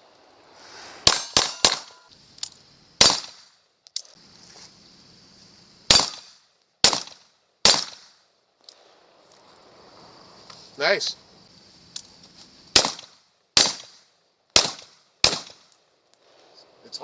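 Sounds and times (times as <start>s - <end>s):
gunshots with echo: 1.0s - 2.1s.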